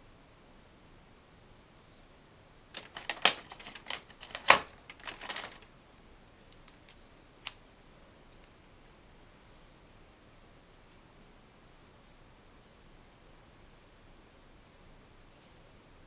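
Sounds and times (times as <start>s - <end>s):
small hard clicks and rattles: 2.8s - 5.7s.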